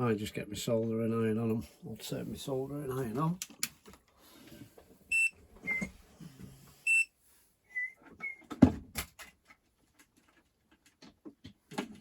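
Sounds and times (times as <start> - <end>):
electronic beep: 5.1 - 5.9, 6.9 - 7.1.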